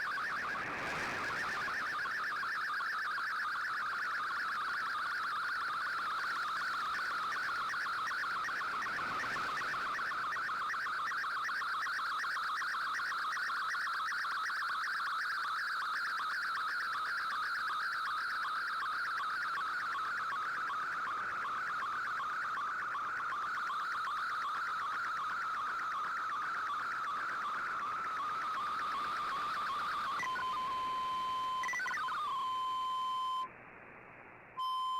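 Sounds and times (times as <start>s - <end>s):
faint radio band noise: 0.0s - 34.9s
warbling digital data signal: 9.4s - 33.3s.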